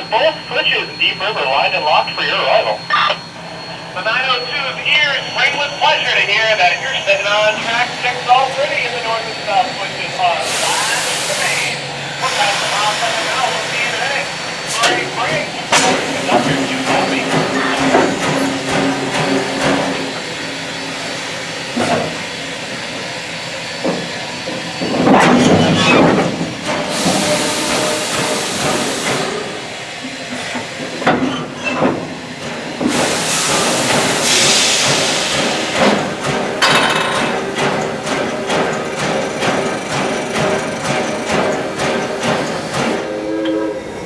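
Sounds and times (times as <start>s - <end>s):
steam hissing: 4.5s - 24.8s, 26.2s - 30.2s, 32.0s - 43.8s
train running gear clanking: 12.2s - 44.0s.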